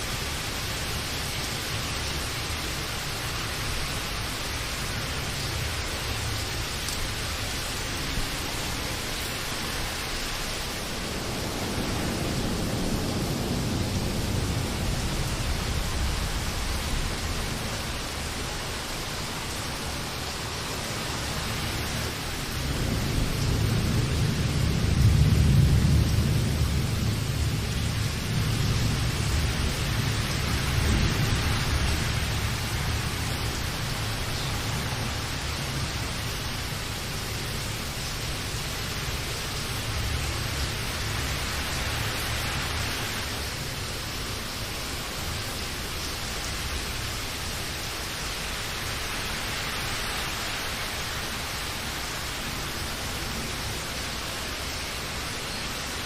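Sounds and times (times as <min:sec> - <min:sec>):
rainfall hissing: 0:00.0 - 0:56.0
rolling thunder rumble: 0:10.2 - 0:19.0, 0:22.4 - 0:43.8.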